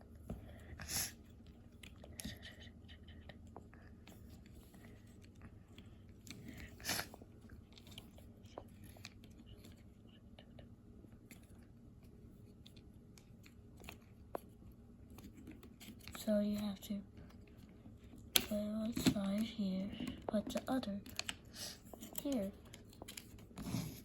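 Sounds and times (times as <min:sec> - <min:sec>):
plastic parts clicking and rustling: 0:15.1 - 0:24.0
scrape: 0:23.6 - 0:24.0.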